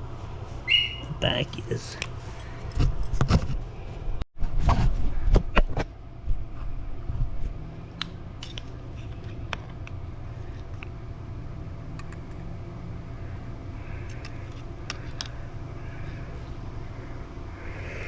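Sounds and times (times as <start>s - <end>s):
low steady hum: 0.0s - 4.2s, 5.8s - 18.0s
clicks and knocks of tools: 8.0s - 10.0s.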